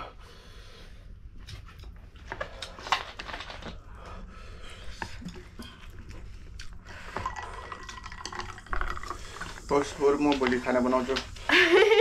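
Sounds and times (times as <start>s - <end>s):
breaths: 0.0s - 1.2s, 2.3s - 8.2s, 8.8s - 9.7s
person chewing noodles: 3.7s - 9.7s.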